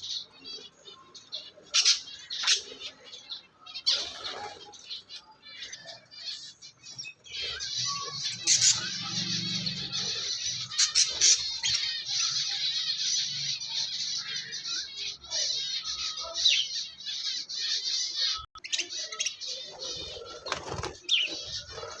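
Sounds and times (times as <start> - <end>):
small birds chirping: 0.0 - 22.0
wings flapping: 19.8 - 22.0.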